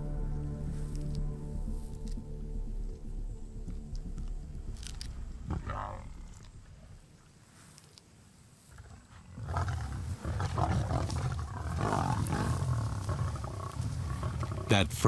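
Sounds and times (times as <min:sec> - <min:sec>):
lionesses growling and roaring: 0:02.9 - 0:07.3, 0:08.6 - 0:15.0.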